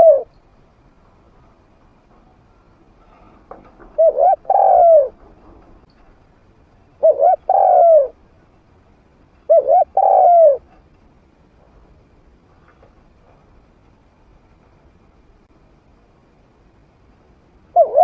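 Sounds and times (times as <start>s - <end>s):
dove cooing: 0.0s - 0.3s, 3.8s - 5.2s, 7.0s - 8.2s, 9.5s - 10.7s, 17.7s - 18.0s.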